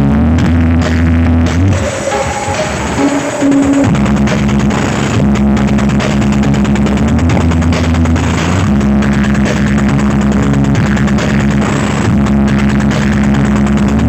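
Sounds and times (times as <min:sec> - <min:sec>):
bass-heavy electronic music: 0:00.0 - 0:14.0.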